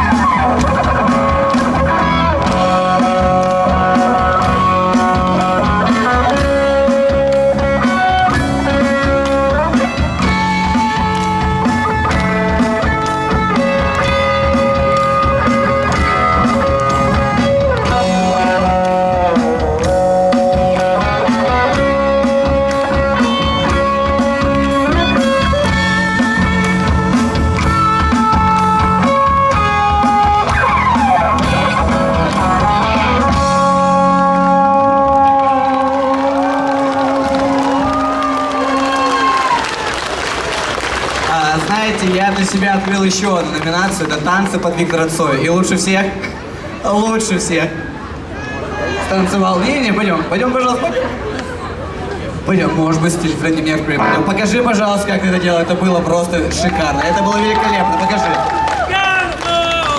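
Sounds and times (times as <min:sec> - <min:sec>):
steady drum beat: 0:00.0 - 0:34.5
electric guitar lead: 0:00.0 - 0:39.6, 0:53.8 - 0:56.8
bass guitar: 0:00.0 - 0:39.7, 0:51.6 - 0:58.9.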